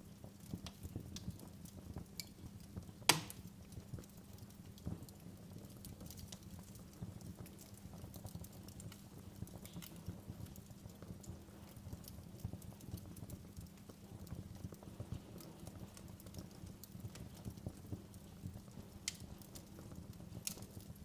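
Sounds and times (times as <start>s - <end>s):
wood fire crackling: 0.0s - 21.0s
loud sharp pop: 3.1s - 3.4s.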